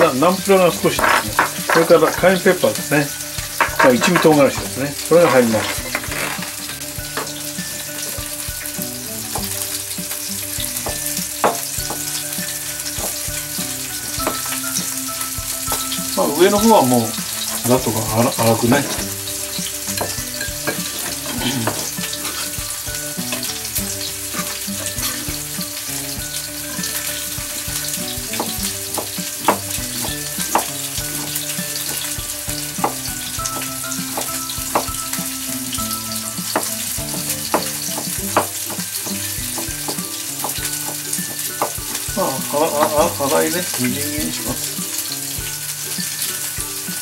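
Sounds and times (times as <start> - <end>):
fish sizzling in a pan: 0.0 - 47.0
knife chopping on plastic board: 36.6 - 41.0.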